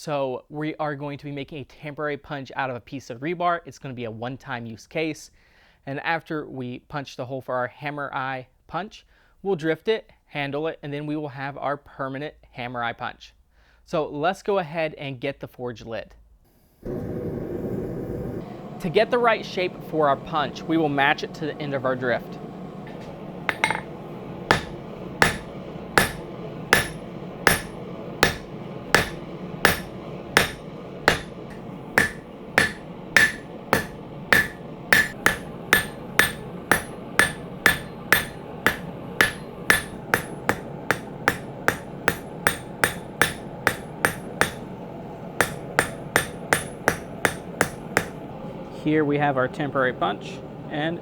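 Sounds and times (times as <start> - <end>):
hammer striking metal on anvil: 22.9 - 48.3.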